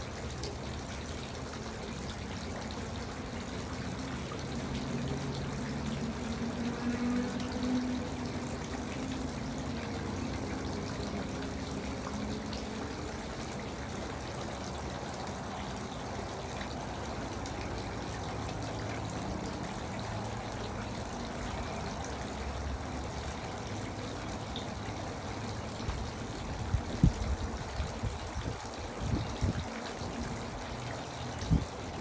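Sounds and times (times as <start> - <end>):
fountain water trickling: 0.0 - 32.0.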